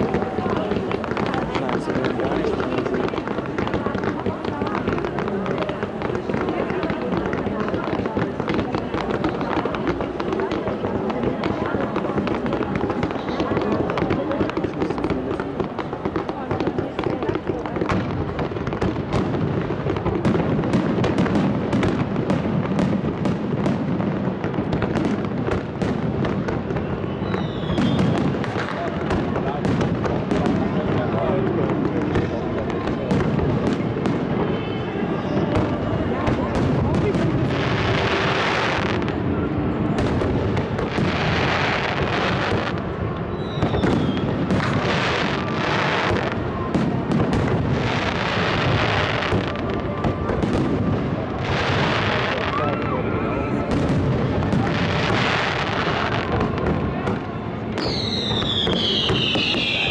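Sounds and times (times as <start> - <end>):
fireworks bursting and crackling: 0.0 - 59.9
firework whistling: 25.8 - 30.0, 33.4 - 59.9.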